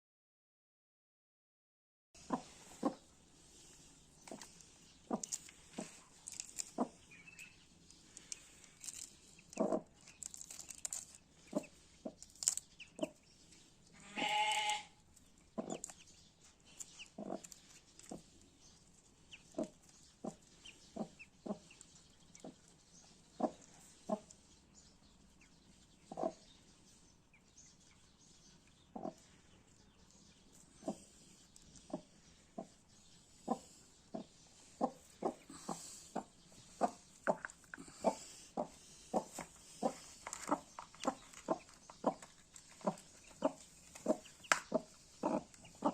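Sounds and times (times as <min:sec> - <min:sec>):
duckling peeping: 0:09.6 - 0:09.9, 0:15.6 - 0:16.0, 0:16.9 - 0:18.2, 0:19.3 - 0:21.8, 0:26.1 - 0:26.4, 0:28.9 - 0:29.2, 0:33.4 - 0:45.9.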